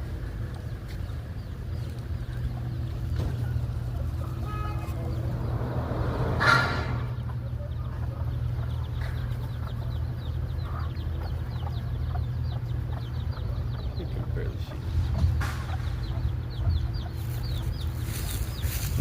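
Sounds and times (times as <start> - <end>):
low rumble: 0.0 - 13.8
chickens clucking: 0.0 - 19.0
chicks peeping: 0.0 - 19.0.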